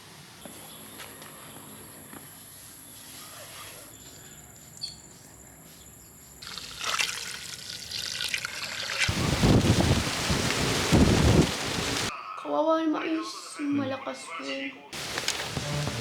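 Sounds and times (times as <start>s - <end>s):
heavy rain: 9.1s - 12.1s, 15.0s - 16.0s
wind gusts buffeting microphone: 9.1s - 12.1s, 15.0s - 16.0s.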